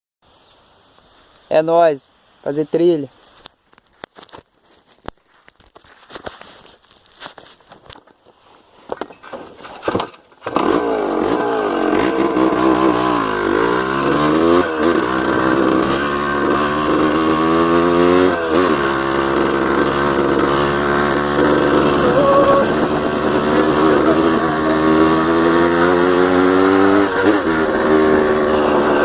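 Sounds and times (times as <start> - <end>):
two-stroke engine starting and revving: 9.4 - 29.0.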